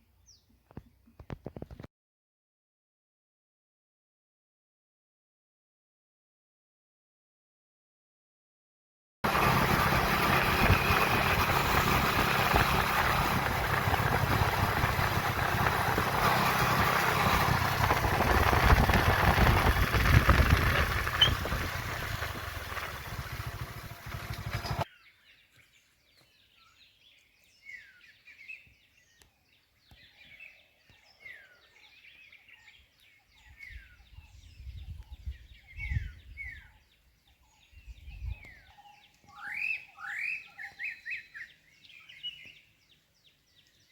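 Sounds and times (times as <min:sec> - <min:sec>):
bird chirping: 0:24.6 - 0:43.9.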